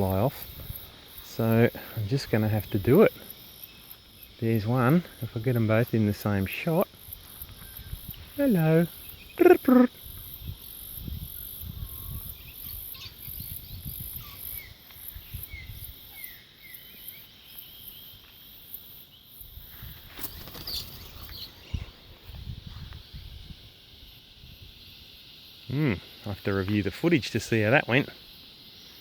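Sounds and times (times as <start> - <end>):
insects trilling: 0.0 - 29.0
loud voice-like call: 9.4 - 10.0.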